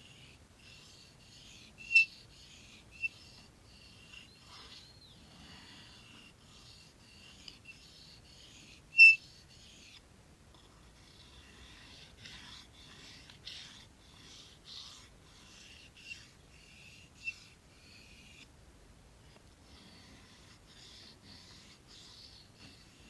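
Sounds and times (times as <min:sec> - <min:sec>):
knife rasping on sharpening stone: 0:01.9 - 0:02.2, 0:09.0 - 0:09.2.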